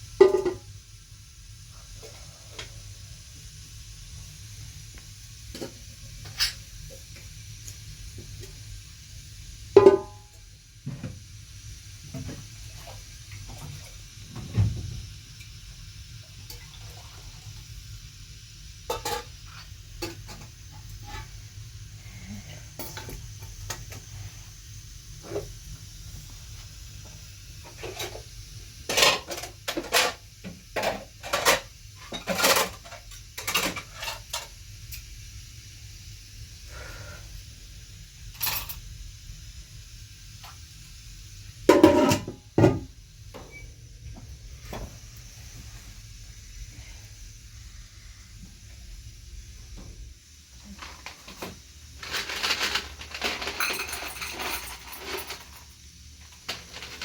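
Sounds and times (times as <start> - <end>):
dishes and utensils clinking: 0.2 - 0.6, 9.8 - 10.2, 30.8 - 34.5, 41.7 - 42.9.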